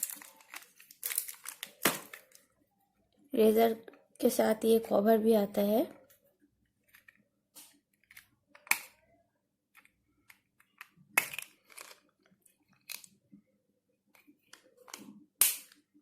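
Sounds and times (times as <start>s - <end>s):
crinkly plastic rustles: 0.0s - 2.6s.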